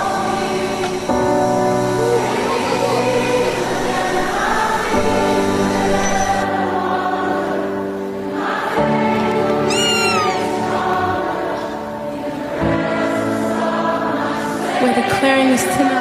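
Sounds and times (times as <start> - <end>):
choir singing worship music: 0.0 - 16.0
high falling cry: 9.6 - 10.7.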